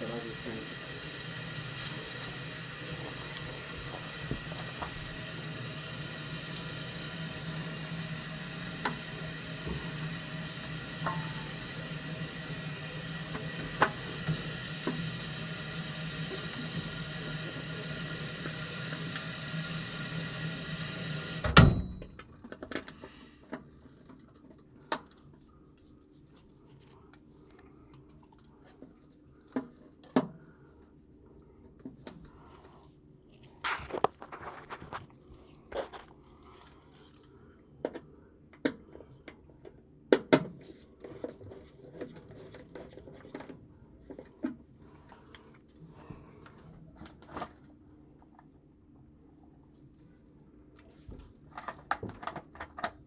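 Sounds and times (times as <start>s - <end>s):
water running: 0.0s - 21.5s.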